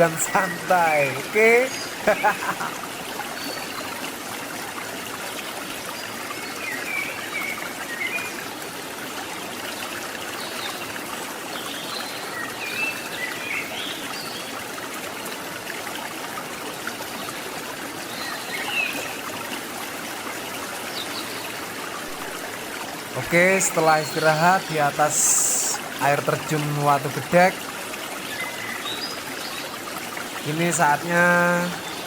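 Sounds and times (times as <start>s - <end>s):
water rushing over rocks: 0.0s - 7.8s, 18.7s - 32.0s.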